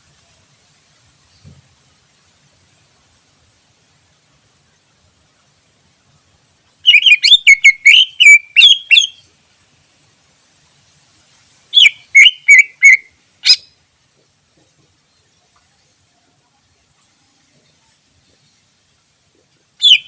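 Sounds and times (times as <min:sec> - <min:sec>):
bird singing whistled notes: 0:06.8 - 0:09.3, 0:11.7 - 0:13.8, 0:19.8 - 0:20.0.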